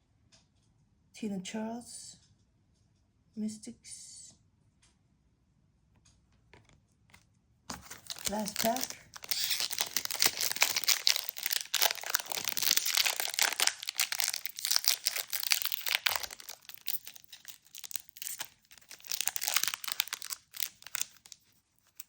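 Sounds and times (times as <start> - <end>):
wrapper being torn and crinkled: 7.7 - 22.0.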